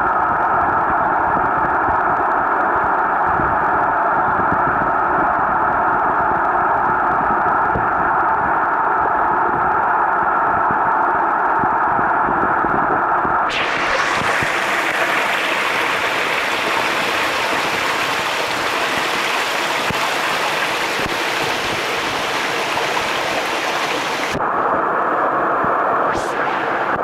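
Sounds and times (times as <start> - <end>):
waterfall rushing water: 13.5 - 24.4, 26.1 - 27.0.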